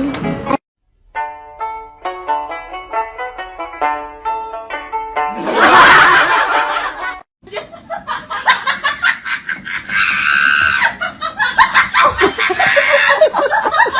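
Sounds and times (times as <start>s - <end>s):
people laughing: 5.4s - 13.9s.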